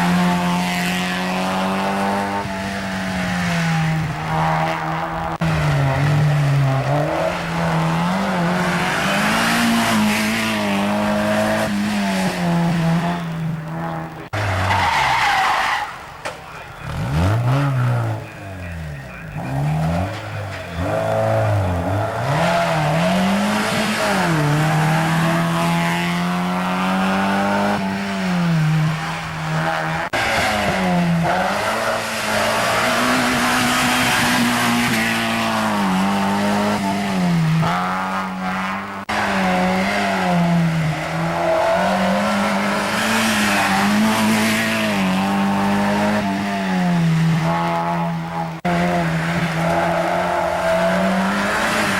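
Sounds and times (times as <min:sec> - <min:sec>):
race car engines revving: 0:00.0 - 0:51.9
tyre squeal: 0:14.4 - 0:16.1.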